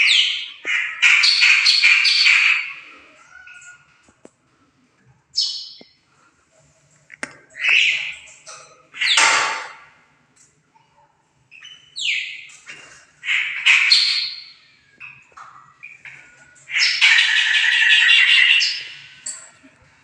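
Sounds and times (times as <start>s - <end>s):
harsh rasping bird chatters: 13.2s - 19.2s.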